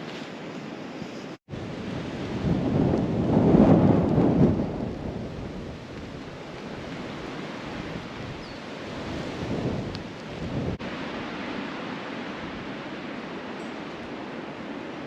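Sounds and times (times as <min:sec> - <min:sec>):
wind buffeting microphone: 0:01.5 - 0:11.6.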